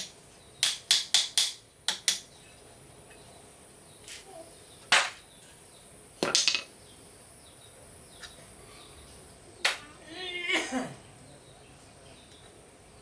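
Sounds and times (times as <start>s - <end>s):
metal tools knocking: 6.2s - 6.7s.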